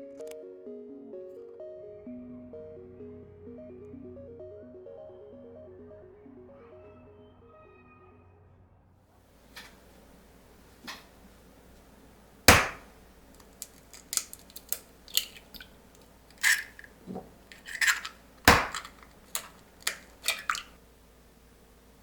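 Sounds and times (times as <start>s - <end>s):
sharp loud knocks: 12.4s - 13.0s, 18.4s - 18.8s
utensils and dishes clicking: 12.5s - 20.8s.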